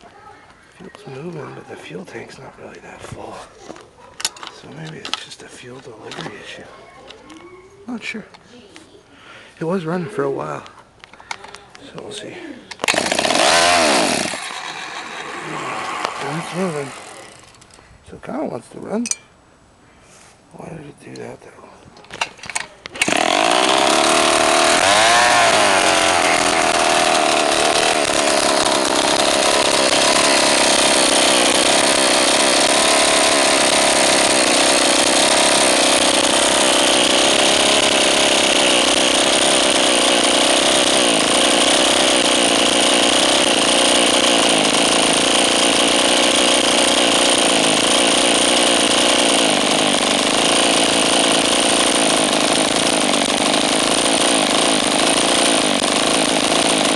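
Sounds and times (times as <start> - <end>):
scooter engine running: 12.8 - 17.8, 23.0 - 56.9.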